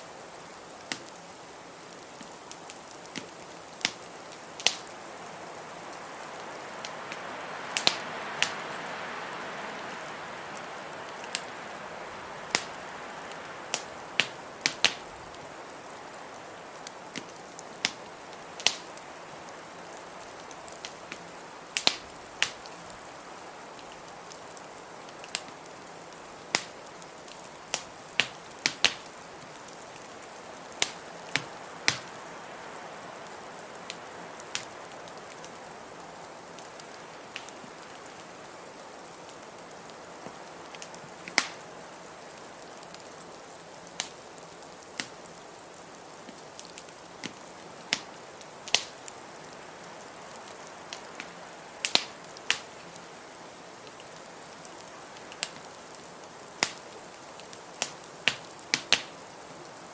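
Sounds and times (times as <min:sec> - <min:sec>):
wood fire crackling and popping: 0:00.2 - 0:32.6, 0:33.4 - 0:59.9
blizzard wind hissing: 0:02.9 - 0:42.7.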